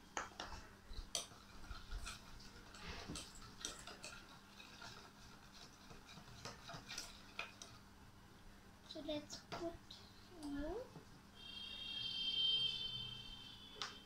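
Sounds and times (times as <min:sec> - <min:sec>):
spoon tapping and scraping a bowl: 0:00.2 - 0:07.8.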